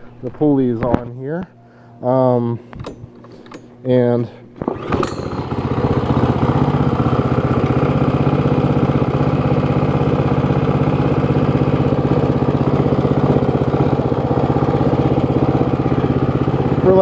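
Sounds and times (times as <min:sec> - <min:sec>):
small engine running steadily: 0:04.6 - 0:17.0.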